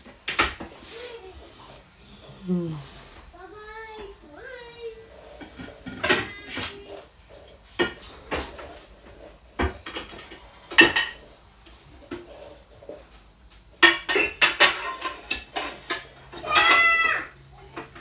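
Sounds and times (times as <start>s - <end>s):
dishes and cutlery clattering: 5.4s - 6.8s, 7.5s - 11.2s, 13.8s - 18.0s.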